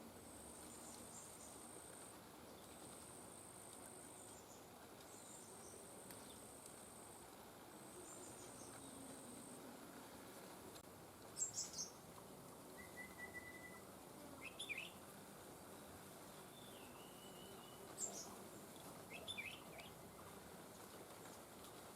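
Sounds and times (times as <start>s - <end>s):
whistled bird note: 12.8s - 13.8s
bird chirps: 14.4s - 15.0s, 19.1s - 19.9s.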